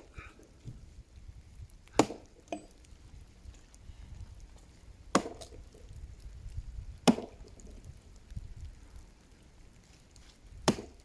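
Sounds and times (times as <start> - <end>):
axe chopping tree trunk: 1.9 - 2.7, 5.1 - 5.7, 7.0 - 7.6, 10.6 - 11.0.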